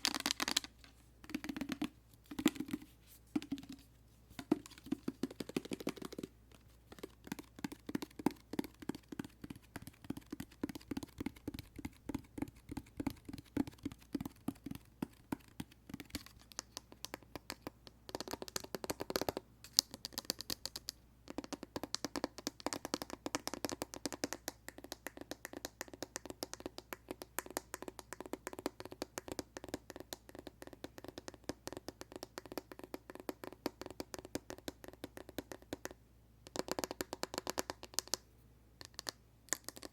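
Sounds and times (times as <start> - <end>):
fingertips tapping a plastic bottle: 0.0 - 38.2, 38.8 - 39.9.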